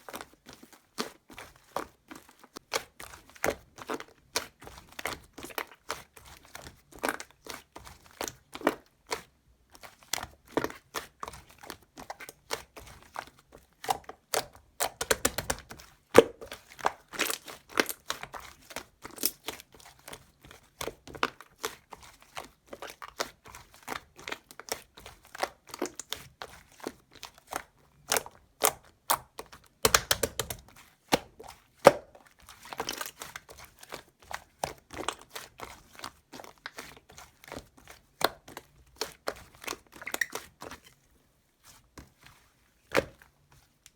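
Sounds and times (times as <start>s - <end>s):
slime crackling and popping: 13.9s - 18.2s, 28.0s - 32.1s.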